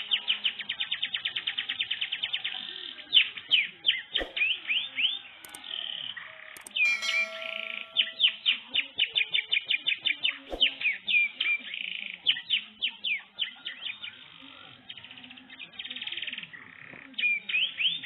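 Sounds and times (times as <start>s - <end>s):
canary singing: 6.6s - 8.3s.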